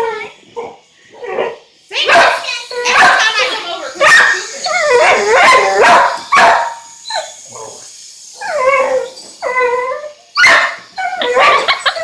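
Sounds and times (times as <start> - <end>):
harsh dog bark: 2.1 - 3.4, 5.0 - 6.8
dog whining and yelping: 4.0 - 12.0.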